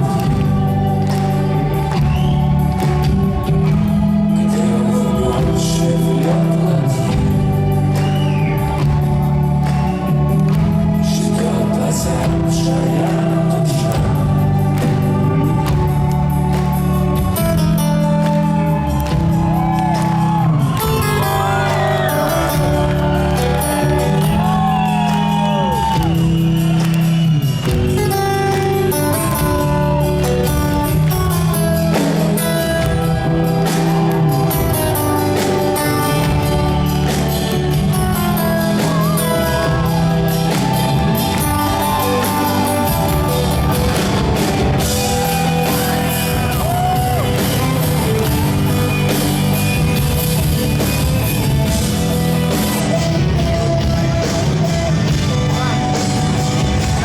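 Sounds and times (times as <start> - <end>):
live rock band with singing: 0.0 - 57.0.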